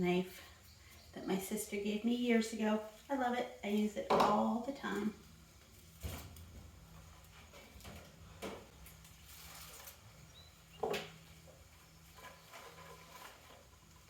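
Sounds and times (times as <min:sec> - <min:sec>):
rustling garlic bulbs: 0:08.1 - 0:10.5, 0:11.6 - 0:14.0.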